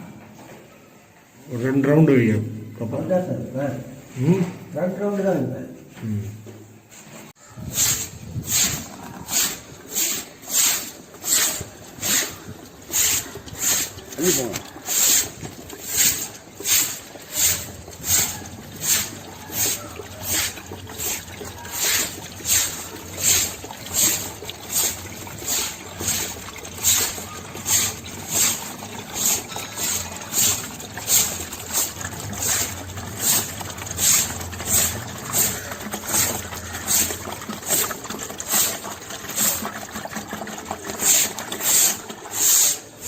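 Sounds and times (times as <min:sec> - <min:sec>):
hand tool scraping masonry: 0:07.6 - 0:37.8.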